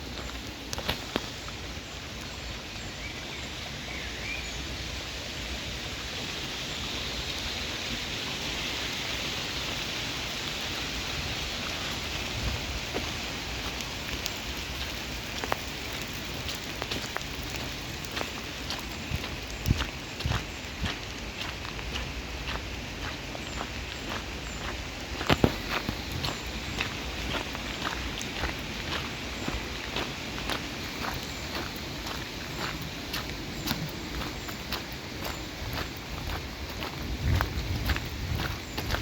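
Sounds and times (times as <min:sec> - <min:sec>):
rain pattering: 0:00.0 - 0:03.7, 0:04.5 - 0:39.0
sharp drip ticks: 0:13.5 - 0:20.4.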